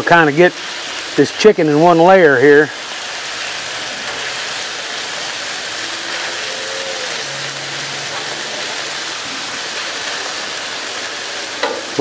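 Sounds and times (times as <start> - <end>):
chicken sizzling on a griddle: 0.0 - 12.0.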